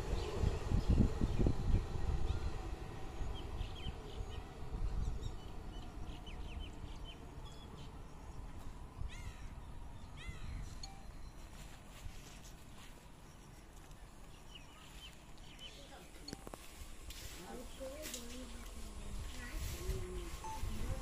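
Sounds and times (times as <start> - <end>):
electric train rumbling: 0.0 - 9.0
birds chirping: 0.0 - 21.0.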